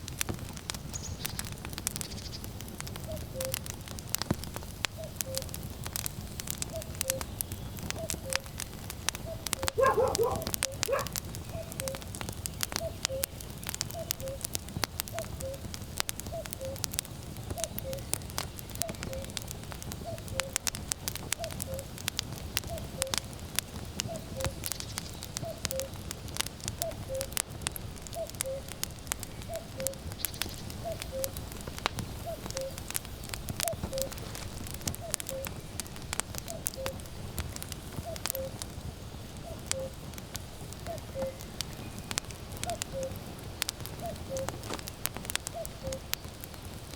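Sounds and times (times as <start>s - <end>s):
firewood crackling and popping: 0.0s - 46.9s
cuckoo calling: 3.0s - 3.7s, 4.9s - 5.6s, 6.6s - 8.6s, 9.2s - 12.0s, 12.7s - 14.5s, 15.2s - 16.9s, 17.5s - 19.4s, 20.0s - 20.7s, 21.4s - 21.9s, 22.6s - 23.2s, 24.1s - 26.0s, 26.8s - 27.4s, 28.1s - 28.8s, 29.4s - 31.4s, 32.2s - 35.6s, 36.5s - 37.1s, 38.0s - 38.6s, 39.4s - 40.0s, 40.8s - 42.0s, 42.6s - 43.2s, 44.0s - 44.7s, 45.5s - 46.3s.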